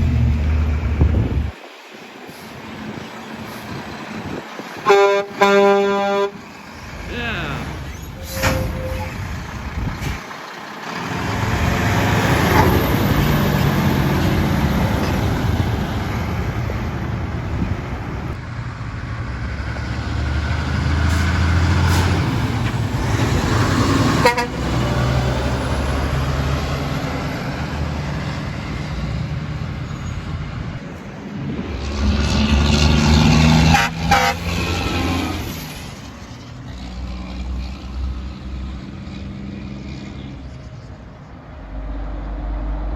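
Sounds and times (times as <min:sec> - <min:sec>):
heavy trucks driving past: 0:00.0 - 0:42.9
truck air horn blasting: 0:04.8 - 0:06.4, 0:24.1 - 0:24.8, 0:33.5 - 0:35.4.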